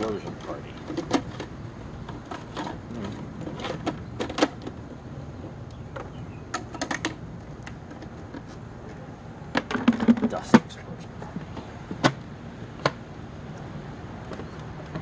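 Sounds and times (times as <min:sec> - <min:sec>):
hard plastic clicks and knocks: 0:09.5 - 0:10.8.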